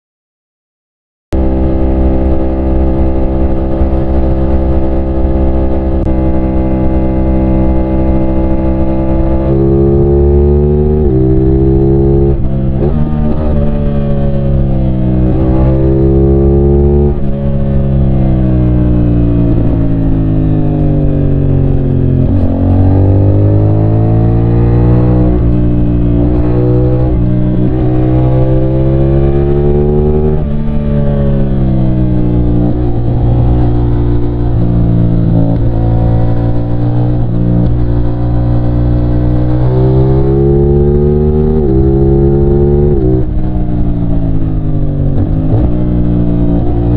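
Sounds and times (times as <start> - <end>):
motorcycle engine revving: 1.4 - 46.9.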